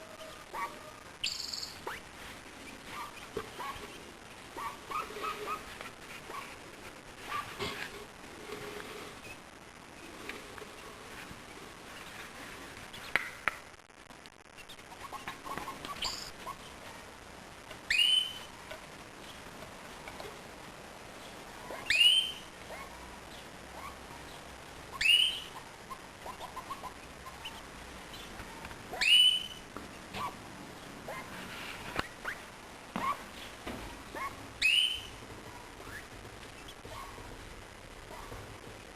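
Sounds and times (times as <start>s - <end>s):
soft bird chirps and chatter: 0.1s - 6.6s, 14.6s - 16.8s, 17.8s - 18.5s, 21.2s - 35.2s.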